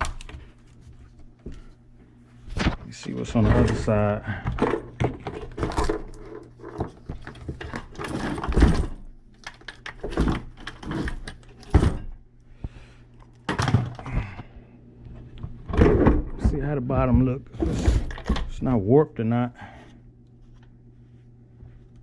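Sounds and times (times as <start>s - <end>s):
tools knocking and clunking: 15.7s - 18.5s.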